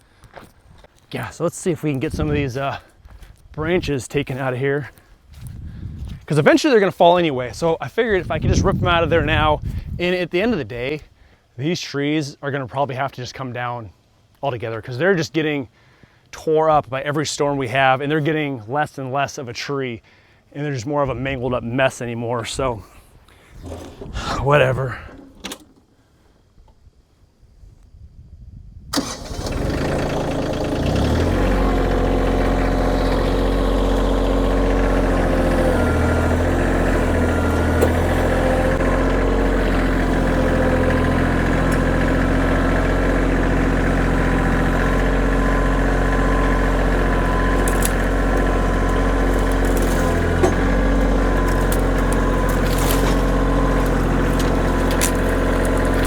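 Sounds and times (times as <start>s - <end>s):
tractor diesel engine starting: 23.4s - 25.8s, 28.9s - 56.0s.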